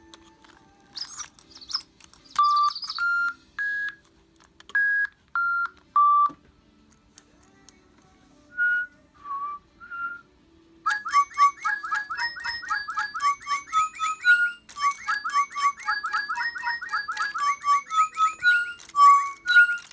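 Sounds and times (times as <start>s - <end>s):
bird whistling clear notes: 1.0s - 3.2s
short high bird chirps: 1.0s - 3.3s.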